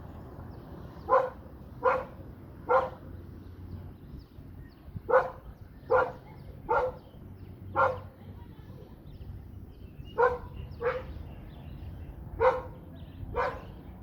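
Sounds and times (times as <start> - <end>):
dog barking: 1.1 - 3.0, 5.1 - 7.1, 7.7 - 8.1, 10.2 - 11.2, 12.4 - 13.8.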